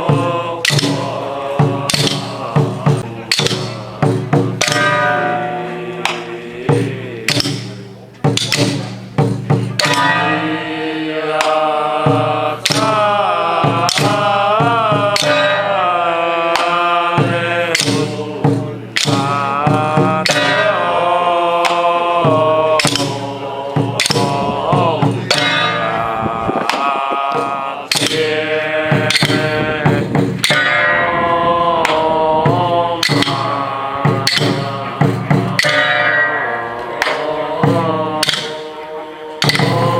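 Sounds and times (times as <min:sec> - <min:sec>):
irregular percussion strikes: 0:00.0 - 0:39.9
wavering melody: 0:02.3 - 0:08.1, 0:09.8 - 0:13.7, 0:30.4 - 0:39.9.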